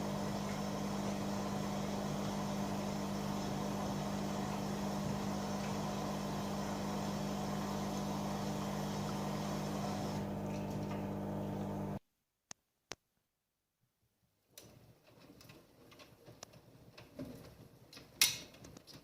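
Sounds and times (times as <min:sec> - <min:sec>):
washing machine humming: 0:00.0 - 0:12.0.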